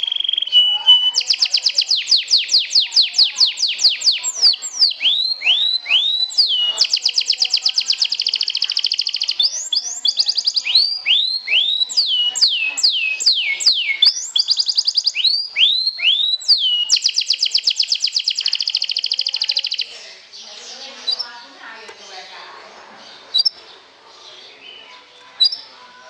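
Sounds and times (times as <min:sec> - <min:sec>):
canary singing: 0:00.0 - 0:26.0.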